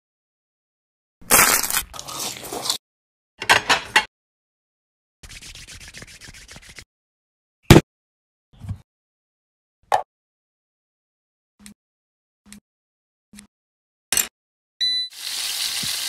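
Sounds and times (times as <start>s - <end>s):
crunchy bites: 1.2s - 2.3s.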